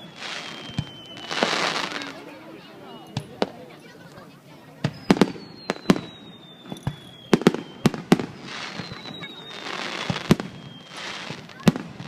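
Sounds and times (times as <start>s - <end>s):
high falling whistle: 0.0s - 1.9s, 4.9s - 11.2s
fireworks bangs: 0.0s - 4.0s, 4.6s - 12.0s
fireworks crackling: 0.0s - 12.0s.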